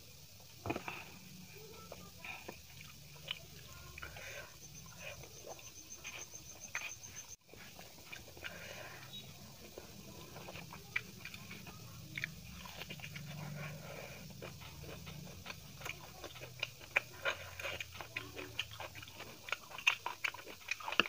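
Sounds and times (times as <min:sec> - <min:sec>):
close chewing with mouth clicks: 0:00.0 - 0:21.0.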